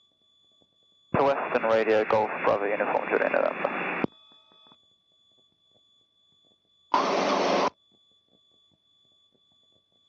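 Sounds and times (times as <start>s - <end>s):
faint steady high whine: 0.6s - 4.7s, 6.9s - 7.8s
radio static burst: 1.2s - 4.1s, 7.0s - 7.7s.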